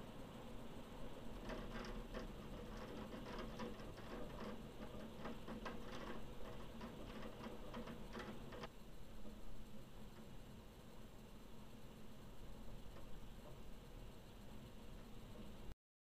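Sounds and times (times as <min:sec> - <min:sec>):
faint steady hiss: 0:00.0 - 0:15.8
raindrops ticking on hard surface: 0:01.1 - 0:08.7.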